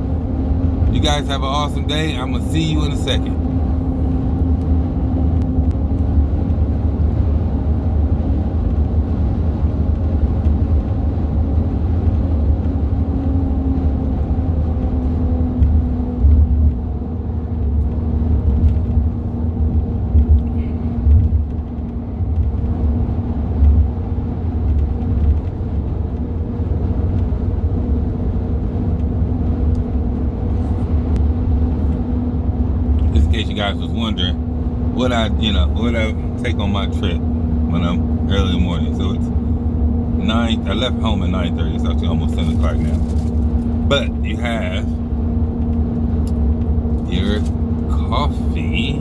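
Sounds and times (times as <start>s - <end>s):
steady hum: 0.0s - 7.5s, 24.7s - 45.6s, 46.2s - 49.0s
engine and road noise rumble: 0.0s - 49.0s.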